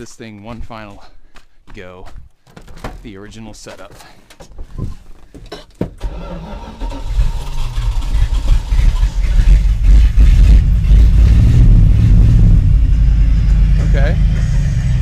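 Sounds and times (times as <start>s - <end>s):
truck engine starting and running: 6.0s - 15.0s.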